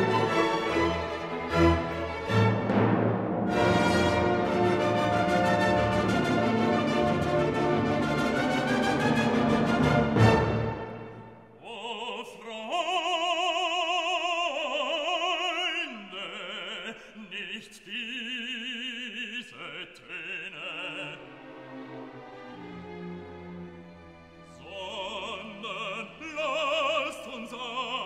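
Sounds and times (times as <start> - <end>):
orchestral chord with brass: 2.5 - 11.4
operatic solo singing: 11.5 - 21.4, 24.5 - 28.0.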